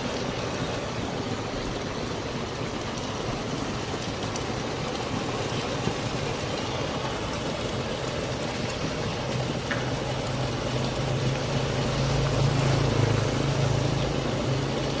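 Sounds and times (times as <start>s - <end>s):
floodwater rushing: 0.0s - 15.0s
vehicle engine humming: 6.4s - 15.0s.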